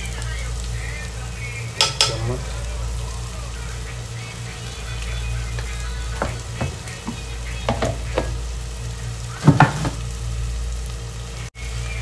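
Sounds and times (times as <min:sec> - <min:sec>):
low hum: 0:00.0 - 0:09.4
food sizzling in oil: 0:00.0 - 0:12.0.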